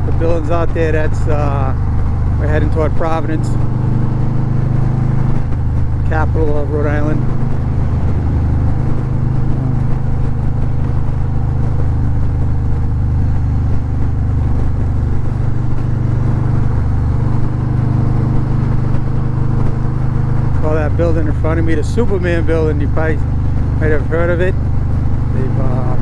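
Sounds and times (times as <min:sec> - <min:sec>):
motorcycle engine cruising: 0:00.0 - 0:26.0
wind rushing: 0:03.5 - 0:20.6.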